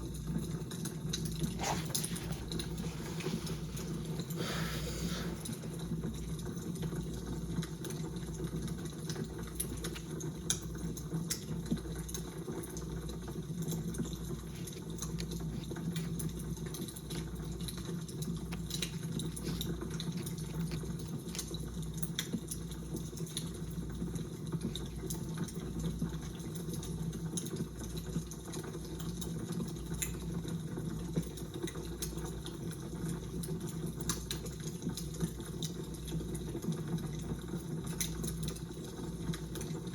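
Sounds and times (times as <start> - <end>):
fire crackling: 1.4 - 6.2.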